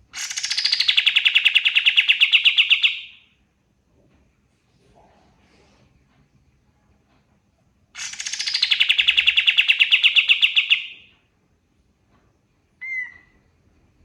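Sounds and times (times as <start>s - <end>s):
bird singing rapid trill: 0.2s - 3.2s, 8.0s - 11.1s.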